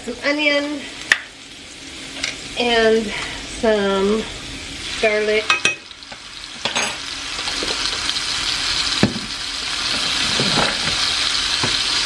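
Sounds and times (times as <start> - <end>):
onion and garlic sizzling in a pan: 0.0 - 12.0.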